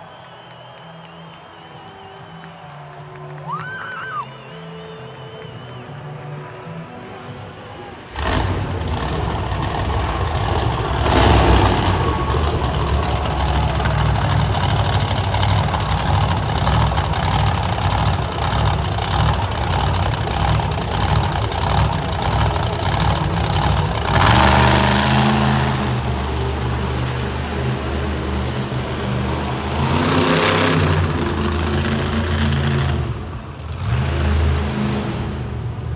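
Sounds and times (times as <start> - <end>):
truck engine running rough: 8.1 - 35.9.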